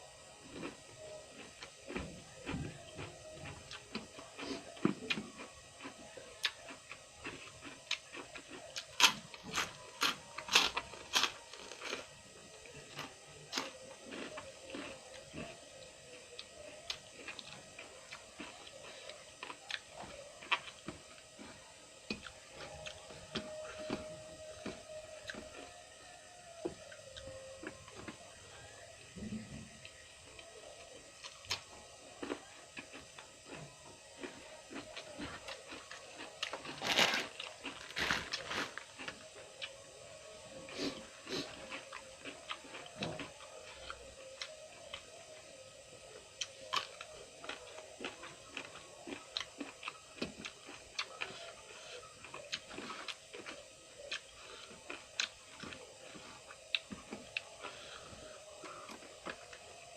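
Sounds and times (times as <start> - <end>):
faint steady hum: 0.0 - 59.9
person chewing food: 0.4 - 59.9
bites crunching: 0.5 - 15.6, 31.2 - 39.8, 46.4 - 59.6.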